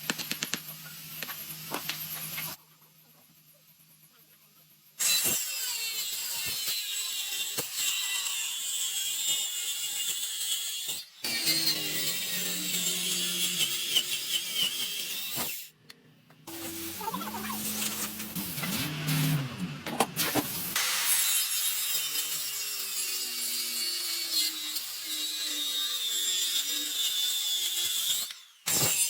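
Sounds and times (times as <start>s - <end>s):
woodworking tool cutting timber: 5.0s - 15.7s, 16.5s - 29.0s.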